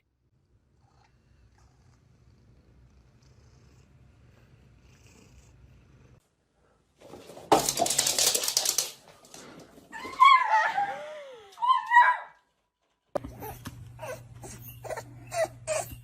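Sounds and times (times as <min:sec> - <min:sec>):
dog whimpering: 0:13.2 - 0:16.0.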